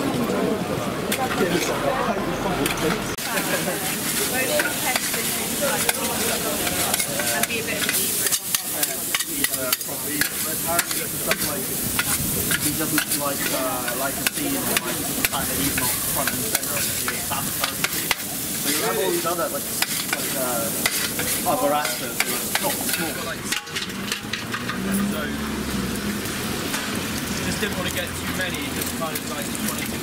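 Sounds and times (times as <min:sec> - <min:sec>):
food sizzling in a pan: 0:02.6 - 0:30.0
utensil scraping and knocking on pan: 0:03.2 - 0:18.3, 0:19.8 - 0:24.8.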